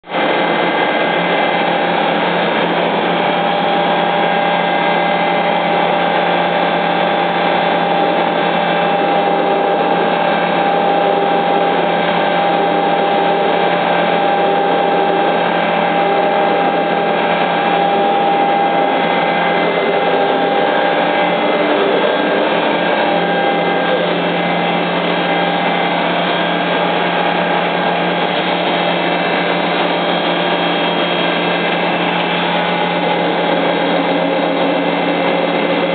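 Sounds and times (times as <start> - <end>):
milling machine running: 0.1 - 35.9.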